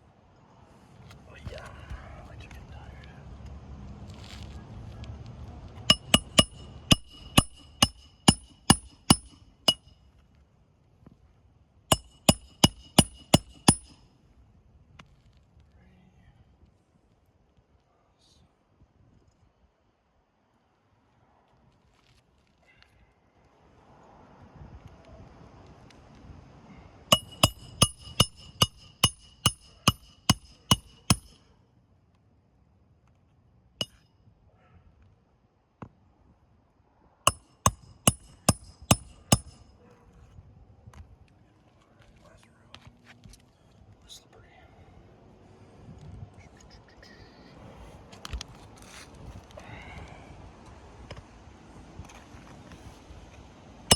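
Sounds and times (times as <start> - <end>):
hammer striking roofing nails: 5.8 - 9.9, 11.9 - 14.0, 27.1 - 31.4, 37.3 - 39.6.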